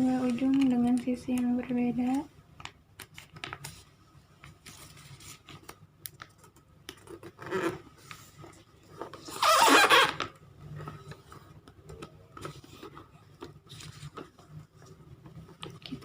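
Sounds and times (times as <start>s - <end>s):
paper folding and rustling: 0.0s - 16.0s
light paper clicks: 0.3s - 3.8s.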